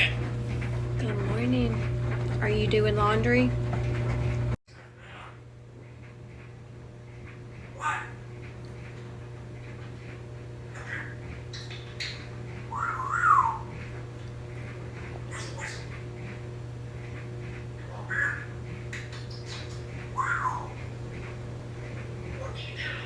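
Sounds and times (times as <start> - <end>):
low hum: 0.0 - 4.6
parrot whistles and squawks: 10.7 - 13.8, 15.3 - 15.9, 17.8 - 18.6, 19.2 - 20.8, 22.4 - 23.0.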